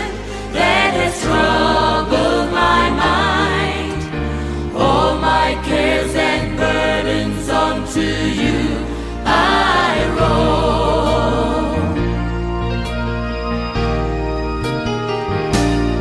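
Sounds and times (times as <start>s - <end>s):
voices singing held notes: 0.0s - 12.3s
instrumental accompaniment with bass: 0.0s - 16.0s.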